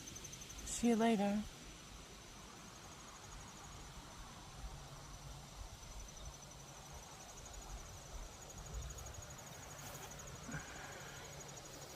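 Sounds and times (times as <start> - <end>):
insects trilling: 0.0 - 11.9.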